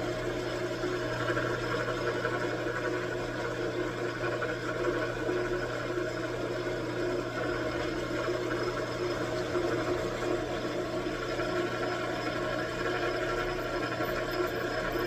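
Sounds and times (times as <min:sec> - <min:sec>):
metal lathe humming: 0:00.0 - 0:15.0.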